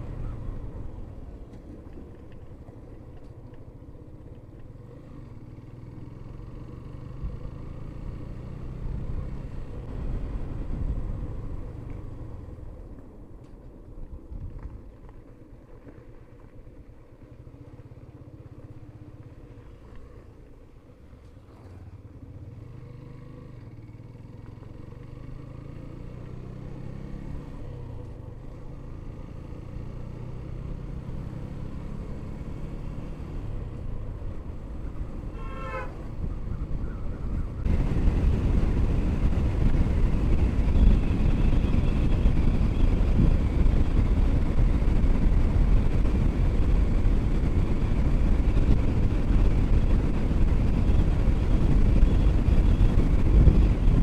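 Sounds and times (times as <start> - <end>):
motorcycle engine: 0.0 - 54.0
wind noise on microphone: 34.8 - 54.0
horn toot: 35.3 - 36.2.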